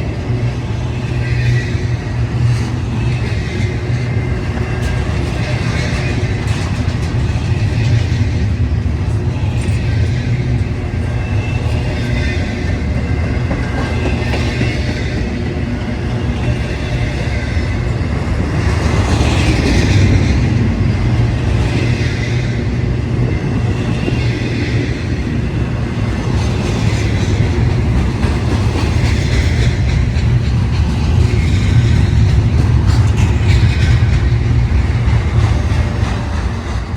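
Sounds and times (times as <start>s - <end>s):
railroad cars clattering: 0.0s - 36.9s
train wheels rumbling on rail: 0.0s - 36.9s.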